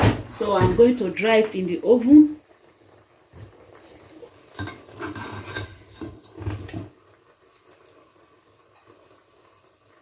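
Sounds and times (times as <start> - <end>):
kitchenware scraping and rubbing: 4.6 - 6.9.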